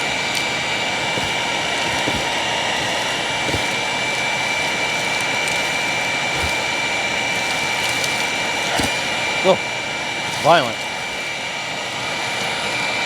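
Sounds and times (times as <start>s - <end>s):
debris ticks: 0.0s - 9.6s
vacuum cleaner whine: 0.0s - 13.0s.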